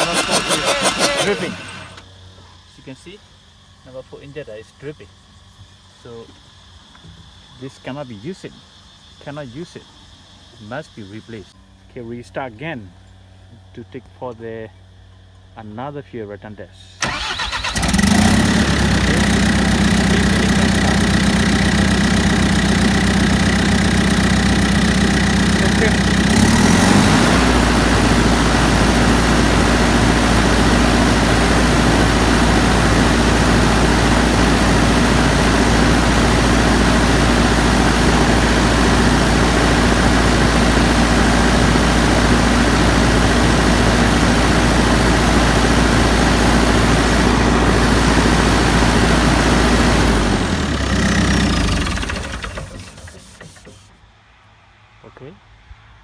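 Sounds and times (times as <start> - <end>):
diesel engine running: 0.0 - 2.1, 17.0 - 54.0.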